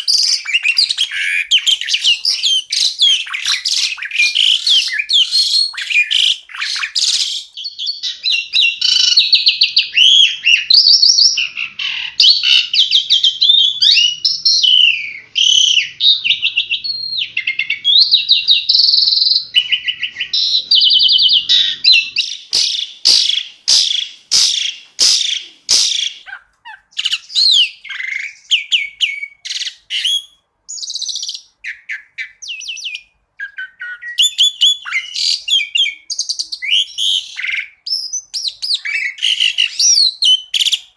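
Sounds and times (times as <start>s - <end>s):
starling whistles and trills: 0.0s - 40.9s
bird sharp clicks: 22.5s - 26.2s.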